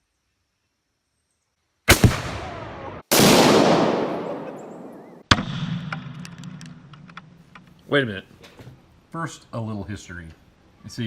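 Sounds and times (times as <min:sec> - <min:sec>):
explosive blast: 0:01.9 - 0:06.3.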